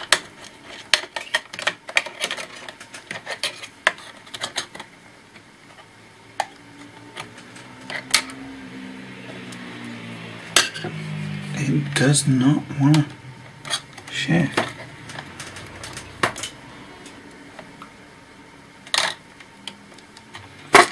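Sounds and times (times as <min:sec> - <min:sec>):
clicks of laptop parts being handled: 0:00.0 - 0:04.9, 0:12.9 - 0:17.9.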